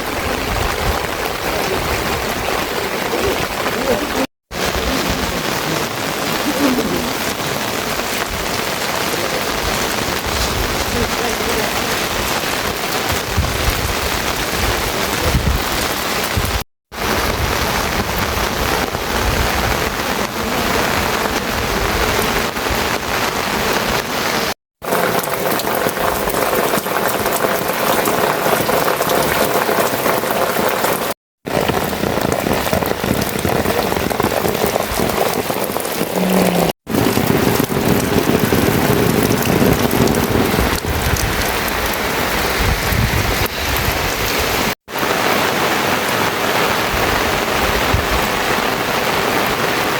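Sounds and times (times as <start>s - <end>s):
rain falling: 0.0s - 49.9s.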